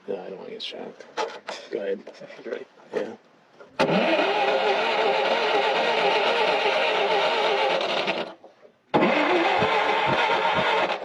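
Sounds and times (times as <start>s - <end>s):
engine cranking without firing: 3.8s - 11.0s.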